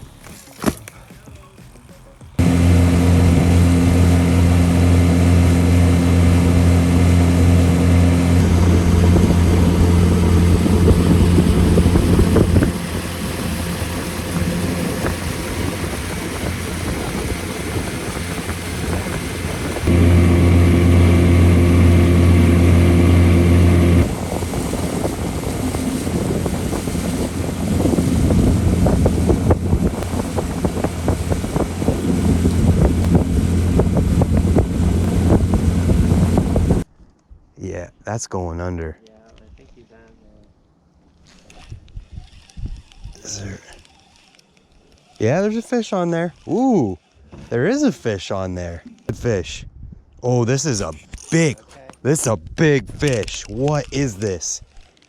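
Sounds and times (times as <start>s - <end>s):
motorboat engine humming: 2.4s - 36.8s
rush of boat through water: 2.4s - 36.8s.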